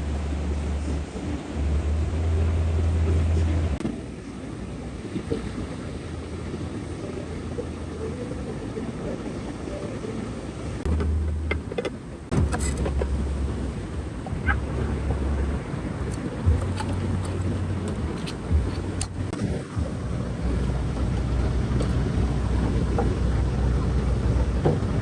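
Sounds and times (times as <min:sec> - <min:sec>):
sea: 0:00.0 - 0:25.0
wind: 0:00.0 - 0:25.0
wind rumble on microphone: 0:00.0 - 0:25.0.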